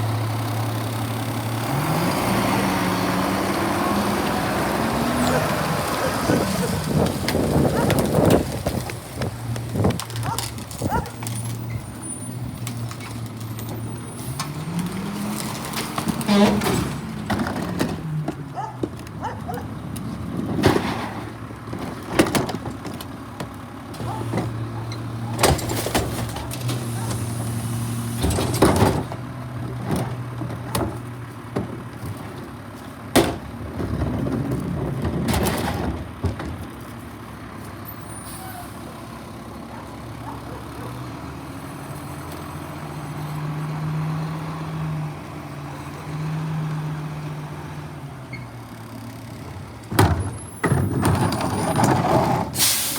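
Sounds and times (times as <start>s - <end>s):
diesel engine running: 0.0s - 52.9s
air brake hiss: 52.6s - 52.9s.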